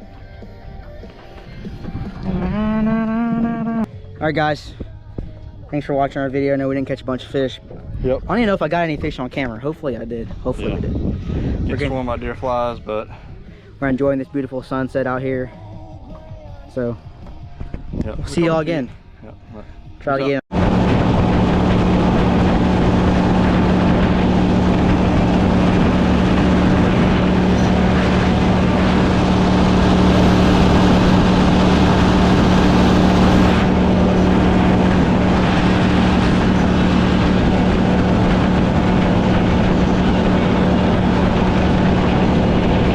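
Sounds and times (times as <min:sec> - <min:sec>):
boat motor droning: 0:00.0 - 0:04.1, 0:20.2 - 0:42.9
wind rushing: 0:10.7 - 0:13.5, 0:20.5 - 0:42.9.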